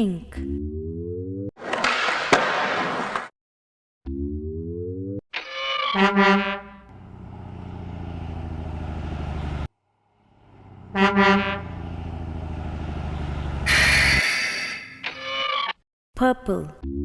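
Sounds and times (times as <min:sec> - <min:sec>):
truck horn honks: 0:05.9 - 0:06.9, 0:10.6 - 0:12.1, 0:13.4 - 0:14.5
truck engine hum: 0:06.7 - 0:14.9.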